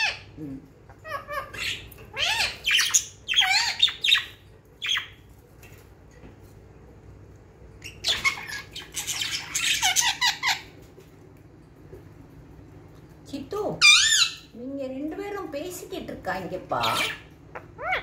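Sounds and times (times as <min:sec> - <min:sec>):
budgerigars chattering: 0:07.8 - 0:10.7.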